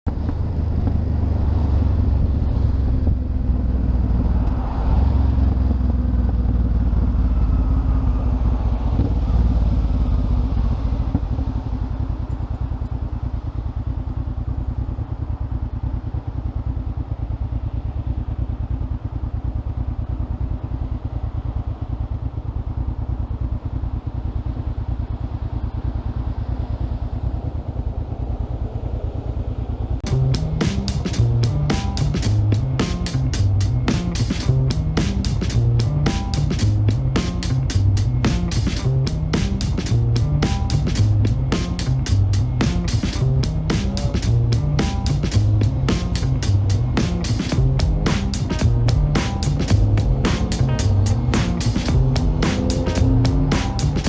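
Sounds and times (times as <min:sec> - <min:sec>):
motorcycle engine idling: 0:05.6 - 0:28.7, 0:29.7 - 0:54.0.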